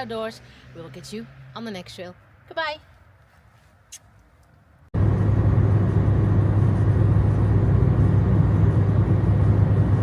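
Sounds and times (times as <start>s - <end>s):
road and wind noise: 0.0s - 10.0s
car rumble: 4.6s - 10.0s.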